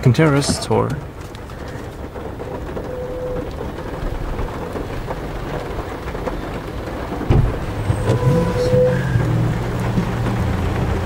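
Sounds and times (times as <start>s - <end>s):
rain drumming on car roof: 0.0s - 11.0s
thump: 7.3s - 8.2s.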